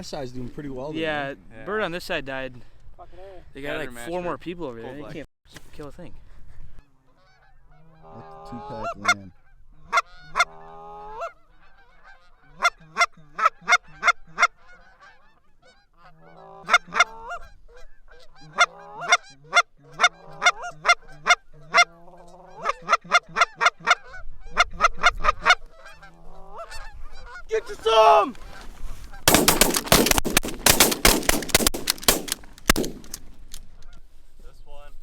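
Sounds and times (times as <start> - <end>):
geese honking: 6.8 - 33.2.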